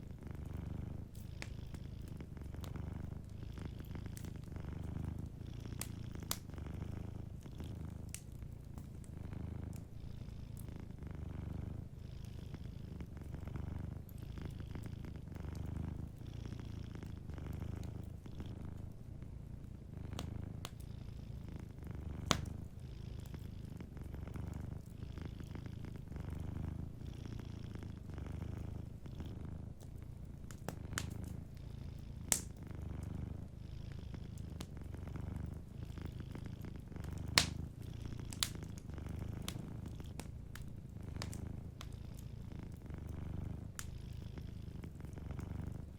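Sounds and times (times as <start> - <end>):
cat purring: 0.0 - 45.9
wood fire crackling pops: 4.2 - 6.5, 20.1 - 20.8, 22.0 - 22.7, 30.5 - 31.4, 32.2 - 32.6, 37.0 - 43.9.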